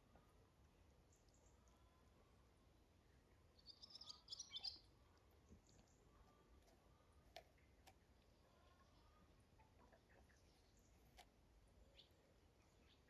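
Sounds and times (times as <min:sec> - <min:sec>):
faint high bird chirps: 0:03.5 - 0:05.0, 0:11.8 - 0:13.0.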